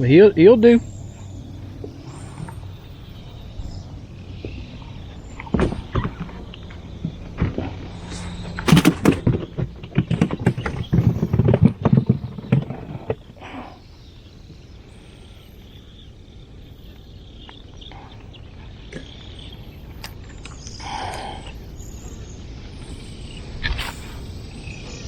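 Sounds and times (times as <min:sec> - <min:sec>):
outdoor background noise: 0:00.0 - 0:25.0
knocks and clatter of handling: 0:05.4 - 0:13.4.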